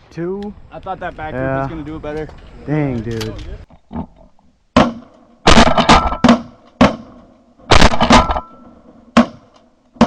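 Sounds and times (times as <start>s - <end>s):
shotgun blasts: 4.8s - 10.0s.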